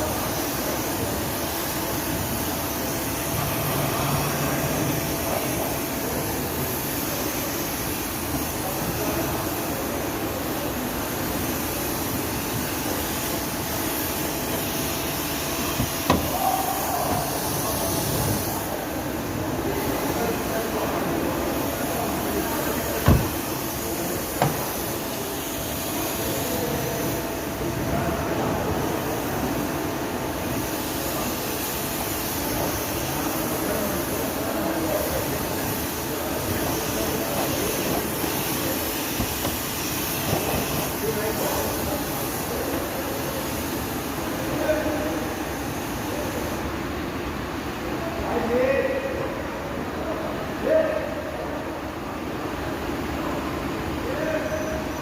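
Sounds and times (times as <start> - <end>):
sharp knock: 15.8 - 16.4, 23.0 - 23.4.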